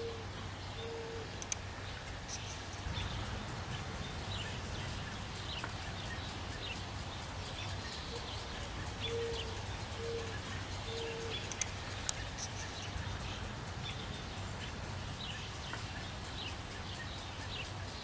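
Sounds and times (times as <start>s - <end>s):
birds chirping: 0.0s - 18.0s
steady low hum: 0.0s - 18.0s.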